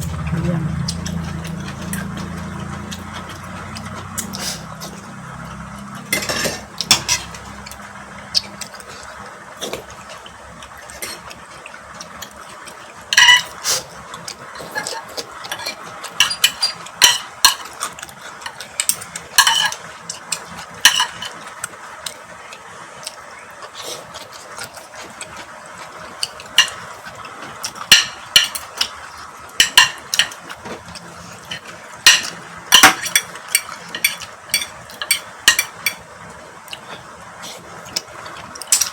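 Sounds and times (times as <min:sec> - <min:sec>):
cutlery clinking on plates: 0:06.0 - 0:07.5, 0:13.1 - 0:13.6, 0:14.6 - 0:17.8, 0:18.4 - 0:19.8, 0:20.8 - 0:21.4, 0:27.8 - 0:29.0, 0:29.6 - 0:30.8, 0:31.4 - 0:36.0.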